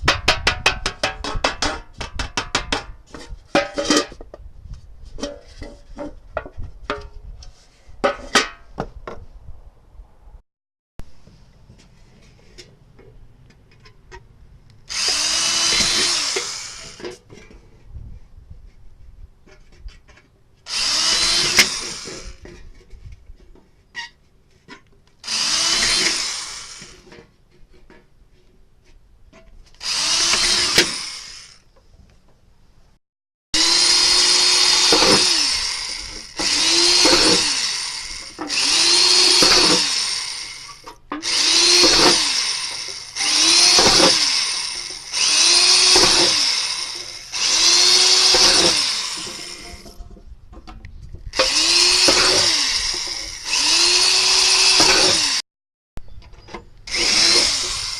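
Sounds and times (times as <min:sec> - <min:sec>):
electric drill boring metal: 0:14.9 - 0:17.1, 0:20.7 - 0:22.4, 0:25.2 - 0:27.2, 0:29.8 - 0:31.6, 0:33.6 - 0:50.0, 0:51.4 - 0:55.4, 0:56.9 - 0:57.9.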